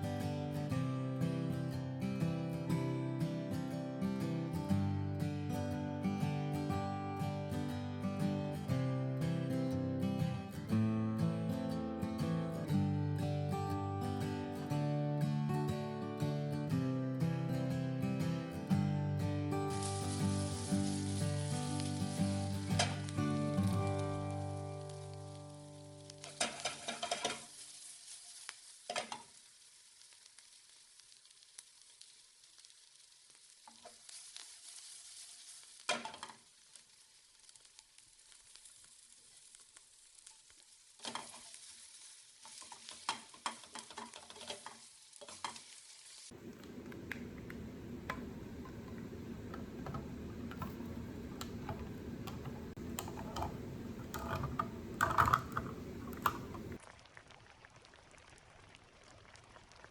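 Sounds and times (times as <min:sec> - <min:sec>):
food sizzling in a pan: 0:12.2 - 0:59.9
utensil knocking and scraping: 0:46.3 - 0:56.8.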